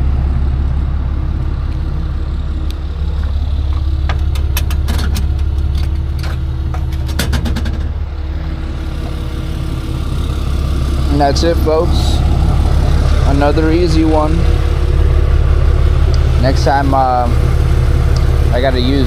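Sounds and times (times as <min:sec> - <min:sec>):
truck engine idling: 0:00.0 - 0:19.0
sharp metallic clicks and rattles: 0:02.7 - 0:08.1.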